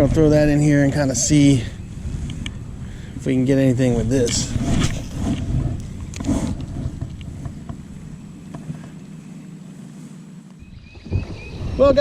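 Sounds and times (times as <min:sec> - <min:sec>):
wind rumbling on microphone: 0:00.0 - 0:12.0
faint clicks and knocks: 0:08.4 - 0:09.1.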